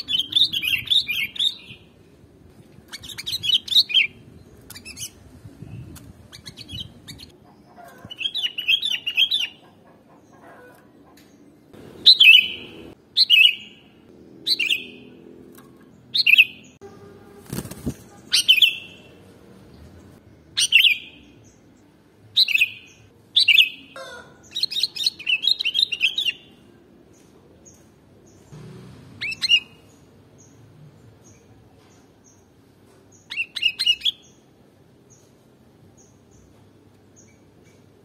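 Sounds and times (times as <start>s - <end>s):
bulbul calling: 12.0s - 13.8s.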